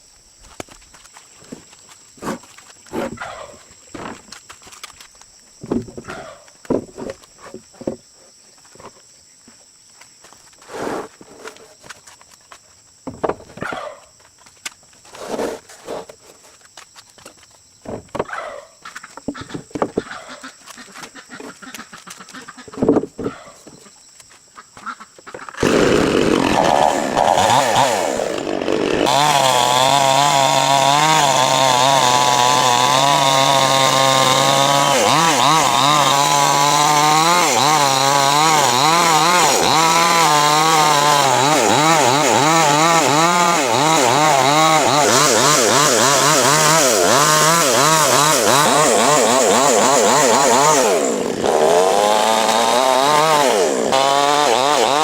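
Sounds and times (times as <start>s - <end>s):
small engine running: 25.6s - 55.0s.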